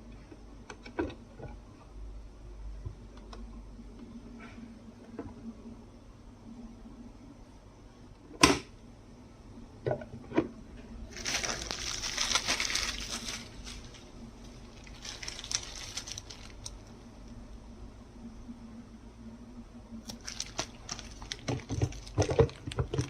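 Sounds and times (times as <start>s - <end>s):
crinkly rustling: 11.1s - 17.0s, 20.0s - 23.0s.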